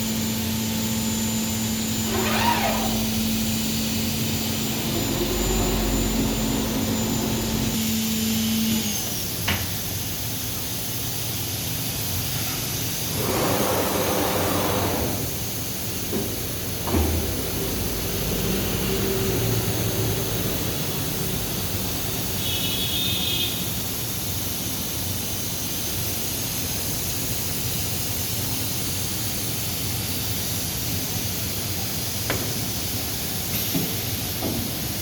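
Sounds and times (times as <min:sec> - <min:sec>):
cnc router humming: 0:00.0 - 0:09.5, 0:13.0 - 0:23.4
high whine: 0:01.7 - 0:08.2
vacuum rushing noise: 0:13.0 - 0:22.3.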